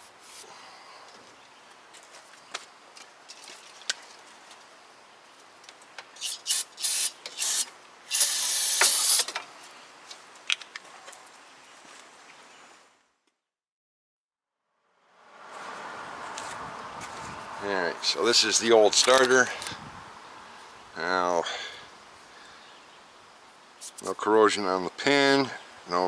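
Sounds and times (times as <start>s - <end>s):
aerosol can spraying: 6.2s - 9.3s.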